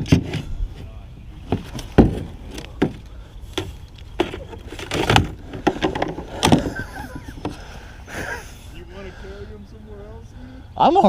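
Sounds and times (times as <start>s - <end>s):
kayak hull and paddle knocking: 1.5s - 7.8s.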